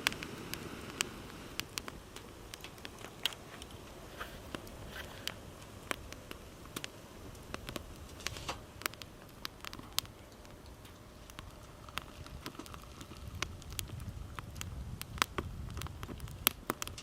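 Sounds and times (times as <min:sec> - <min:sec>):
campfire crackling and popping: 0:00.0 - 0:17.0
low steady rumble: 0:00.0 - 0:17.0.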